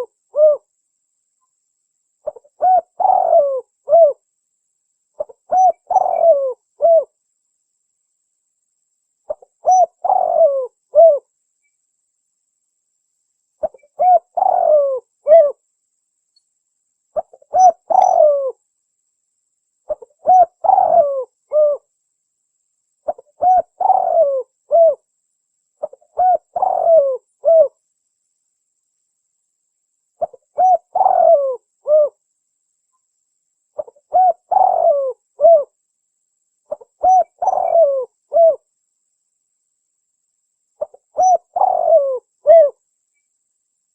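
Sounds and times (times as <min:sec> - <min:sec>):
dove cooing: 0:00.0 - 0:00.7, 0:02.2 - 0:04.2, 0:05.2 - 0:07.2, 0:09.3 - 0:11.3, 0:13.6 - 0:15.6, 0:17.2 - 0:18.6, 0:19.9 - 0:21.9, 0:23.1 - 0:25.0, 0:25.8 - 0:27.8, 0:30.2 - 0:32.2, 0:33.8 - 0:35.8, 0:36.7 - 0:38.7, 0:40.8 - 0:42.8.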